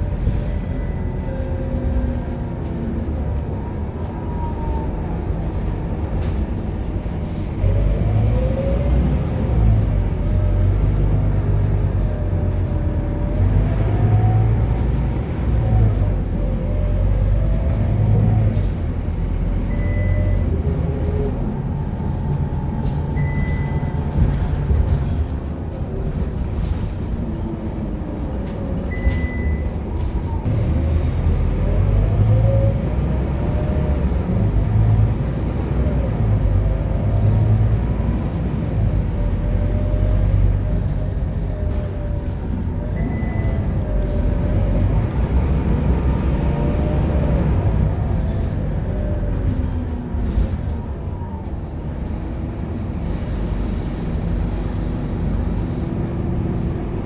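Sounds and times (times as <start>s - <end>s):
bus engine accelerating: 0.0s - 57.0s
short high beep: 28.9s - 29.7s.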